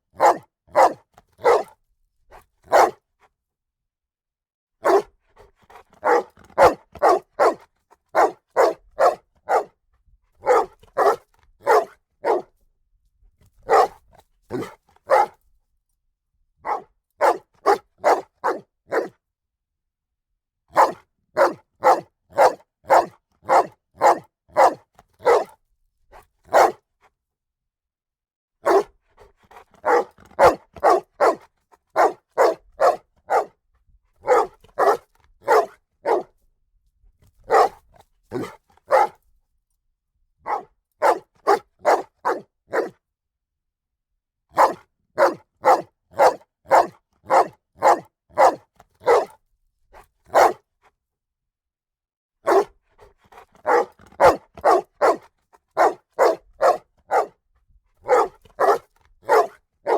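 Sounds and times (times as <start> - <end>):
dog barking loudly: 0.2 - 1.8, 2.7 - 3.0, 4.8 - 5.1, 6.0 - 9.7, 10.4 - 12.5, 13.6 - 15.4, 16.6 - 19.1, 20.7 - 25.6, 26.5 - 26.8, 28.6 - 28.9, 29.5 - 33.6, 34.2 - 36.3, 37.4 - 39.2, 40.4 - 43.0, 44.5 - 49.4, 50.3 - 50.6, 52.4 - 52.7, 53.6 - 57.4, 58.0 - 59.9.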